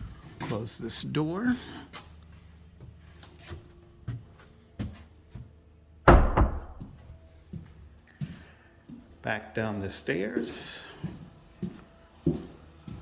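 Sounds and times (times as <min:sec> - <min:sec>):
door thumping shut: 0:06.1 - 0:06.9.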